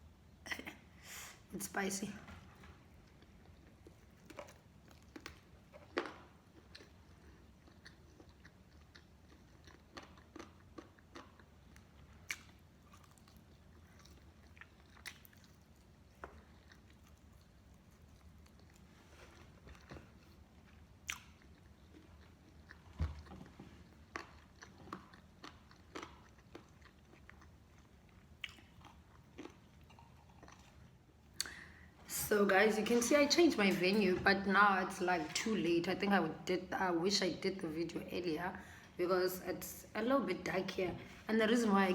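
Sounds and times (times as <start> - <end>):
chewing smacks: 3.0 - 31.7
fried chicken crunching: 7.6 - 27.6, 28.2 - 30.8.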